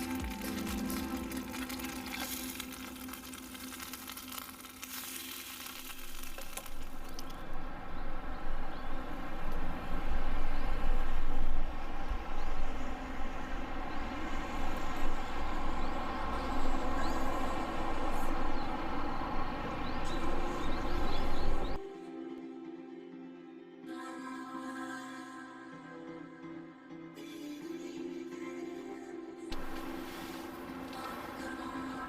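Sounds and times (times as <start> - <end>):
food sizzling in a frying pan: 2.0 - 6.6.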